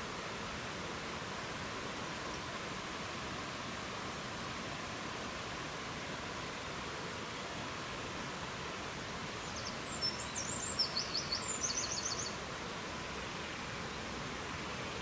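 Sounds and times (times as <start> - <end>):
songbird chirping and trilling: 9.5 - 12.4.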